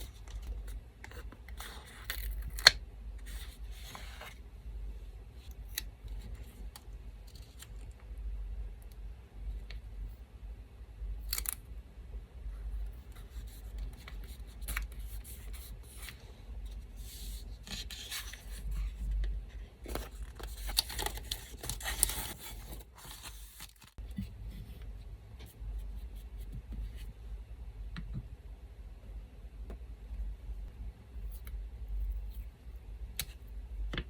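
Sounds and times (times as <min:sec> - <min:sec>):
paper rustling: 0:19.9 - 0:24.0.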